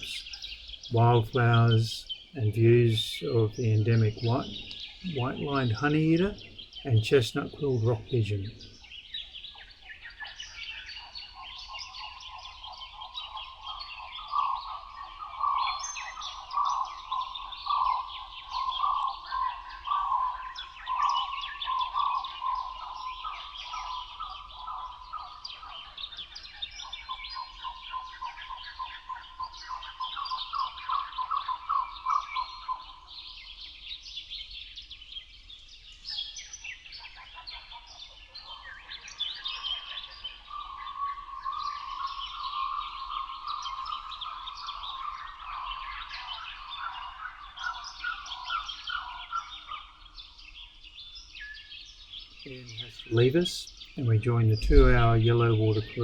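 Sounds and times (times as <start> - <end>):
birds chirping and twittering: 0.0 - 56.0
bird repeating a note: 52.5 - 56.0.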